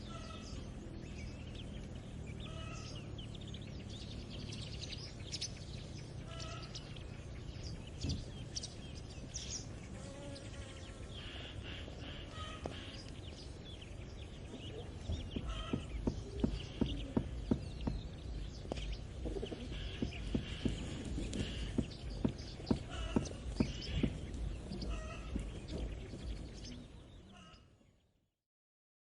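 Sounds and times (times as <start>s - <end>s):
chickens calling: 0.0s - 9.0s, 10.6s - 27.6s
birds chirping: 0.0s - 28.3s
horse hooves clip-clopping: 15.0s - 26.8s.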